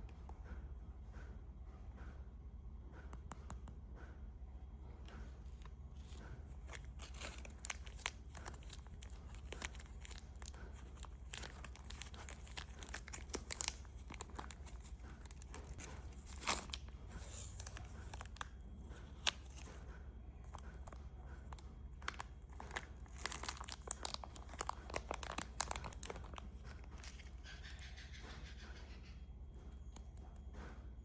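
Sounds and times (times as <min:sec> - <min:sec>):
faint low hum: 0:00.0 - 0:31.0
plastic wrappers crinkling: 0:05.5 - 0:19.9, 0:20.5 - 0:27.5.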